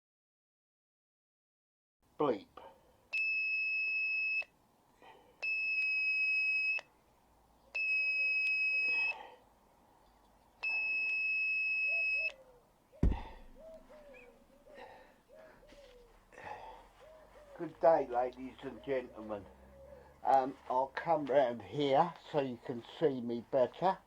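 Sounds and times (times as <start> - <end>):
loud thump: 13.0 - 13.6.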